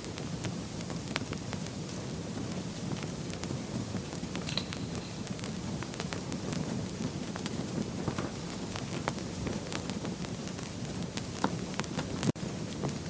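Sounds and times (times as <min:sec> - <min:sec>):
fire crackles and pops: 0:00.0 - 0:13.0
fire flames rushing: 0:05.2 - 0:13.0.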